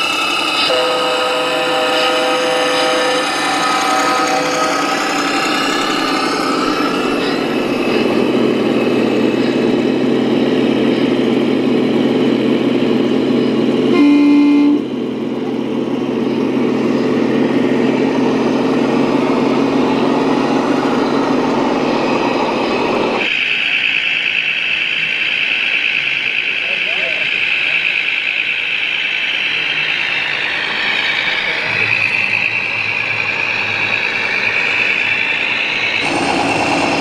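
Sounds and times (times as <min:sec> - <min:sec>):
short horn toot: 0:13.9 - 0:14.8
model vehicle engine sound: 0:31.4 - 0:37.0.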